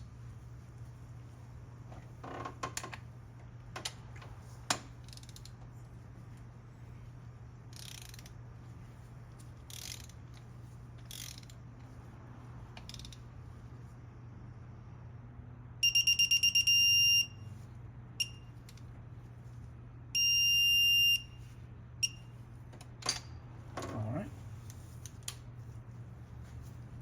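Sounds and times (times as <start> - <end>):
steady low hum: 0.0 - 27.0
ratchet wrench ratcheting: 5.0 - 5.6, 7.7 - 8.4, 9.4 - 11.6, 12.8 - 13.2.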